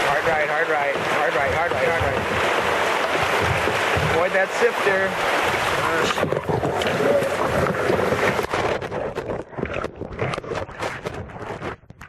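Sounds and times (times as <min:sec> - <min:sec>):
whitewater rushing: 0:00.0 - 0:08.9
splashes and knocks: 0:00.0 - 0:12.0.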